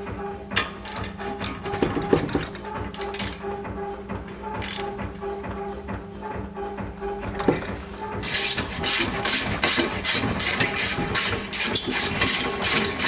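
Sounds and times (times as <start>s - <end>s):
background music: 0.0s - 13.0s
ratchet wrench clicking: 0.8s - 1.6s, 2.9s - 3.5s, 4.6s - 4.9s, 8.2s - 9.4s.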